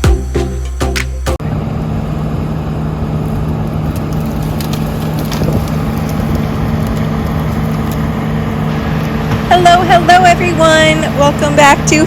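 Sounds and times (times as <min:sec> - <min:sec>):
wood chipper running: 0:00.0 - 0:12.0
wood cracking and splintering: 0:03.2 - 0:08.6.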